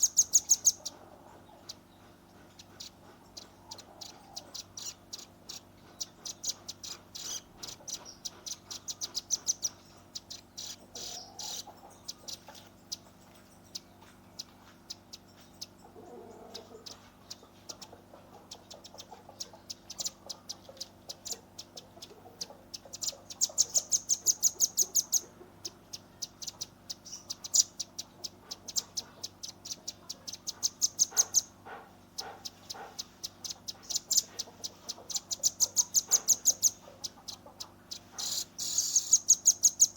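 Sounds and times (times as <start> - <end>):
bird giving sharp high calls: 3.7 - 11.7, 32.2 - 39.9.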